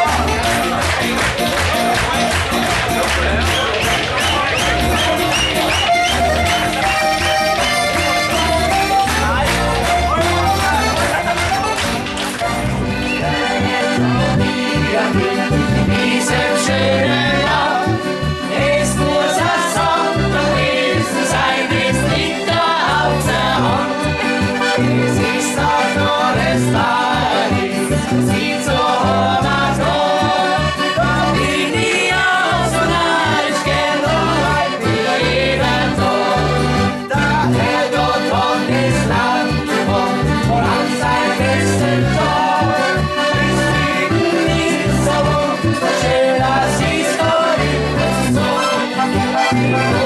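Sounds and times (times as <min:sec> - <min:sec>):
bass and drum beat: 0:00.0 - 0:19.2
accordion melody: 0:00.0 - 0:50.0.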